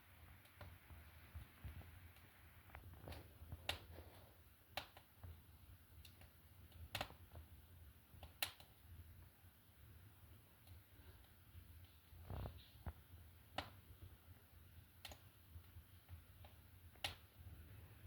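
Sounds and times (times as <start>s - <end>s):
sharp clicks and snaps: 0.4s - 4.0s, 4.7s - 7.4s, 8.1s - 8.9s, 10.6s - 13.8s, 15.0s - 17.4s.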